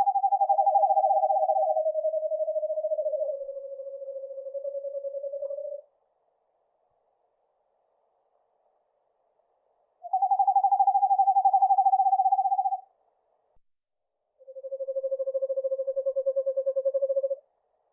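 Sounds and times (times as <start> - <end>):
owl monotone trill: 0.0 - 5.9, 10.0 - 12.9, 14.4 - 17.5.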